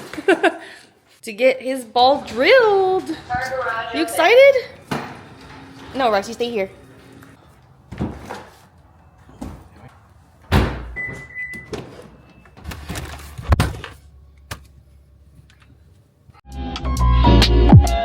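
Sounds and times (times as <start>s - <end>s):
doors thudding shut: 4.8s - 6.2s, 10.4s - 12.2s.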